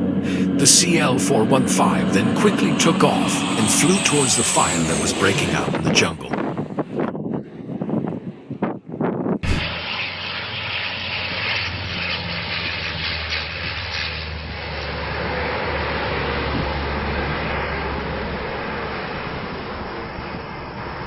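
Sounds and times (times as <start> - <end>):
turboprop engines running: 0.0 - 21.0.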